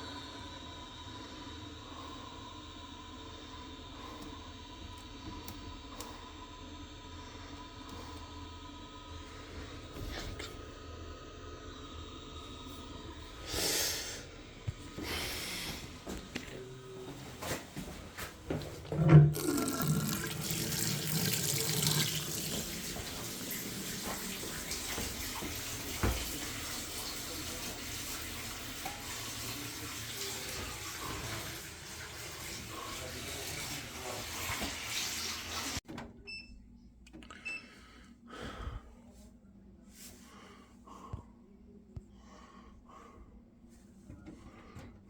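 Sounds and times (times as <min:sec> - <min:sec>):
running water: 0:18.9 - 0:35.8.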